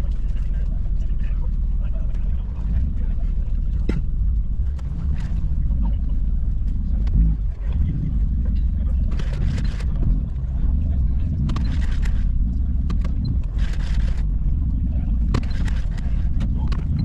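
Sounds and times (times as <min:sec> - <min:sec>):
car engine rumbling: 0:00.0 - 0:17.0
clicks: 0:11.3 - 0:17.0.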